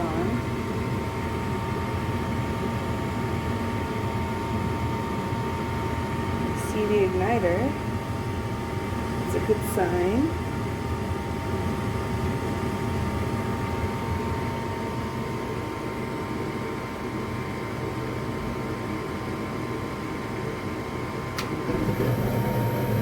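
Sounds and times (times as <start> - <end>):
furnace fan humming with whine: 0.0 - 23.0.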